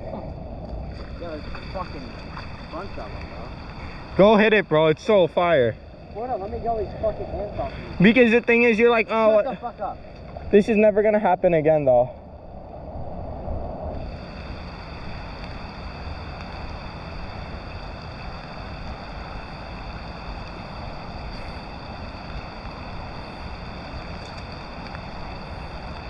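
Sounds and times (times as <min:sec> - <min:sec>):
water rushing over concrete: 0:00.0 - 0:10.0.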